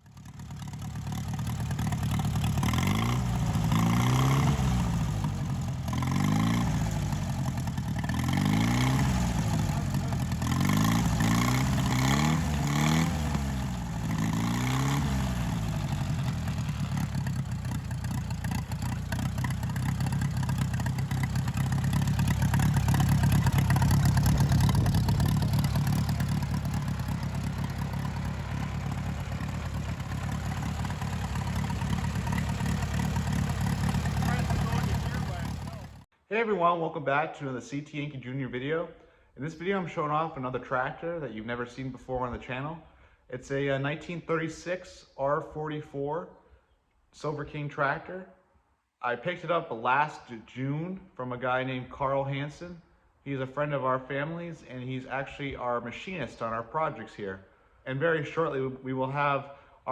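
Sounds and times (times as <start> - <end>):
tractor engine revving: 0.0 - 36.1.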